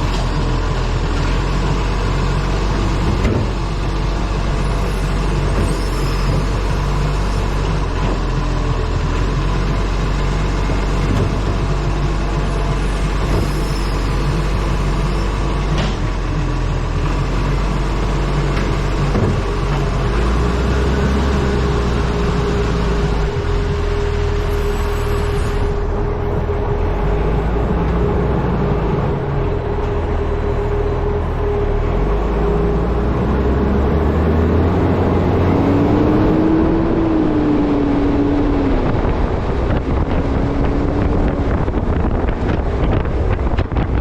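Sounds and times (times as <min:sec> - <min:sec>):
truck engine and road rumble: 0:00.0 - 0:44.0
wind rushing over camera: 0:36.2 - 0:44.0.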